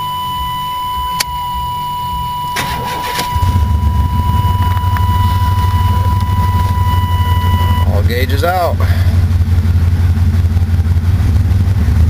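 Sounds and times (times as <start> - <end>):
high-pitched warning tone: 0.0 - 8.6
engine rumbling through muffler: 0.0 - 12.0
starter cranking engine: 0.4 - 12.0.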